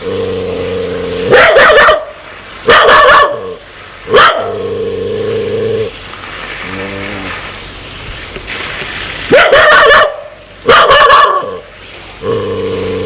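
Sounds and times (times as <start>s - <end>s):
dog growling: 0.0s - 1.3s, 4.5s - 5.9s, 12.2s - 13.0s
dog barking: 1.3s - 3.5s, 4.1s - 4.6s, 9.3s - 11.6s.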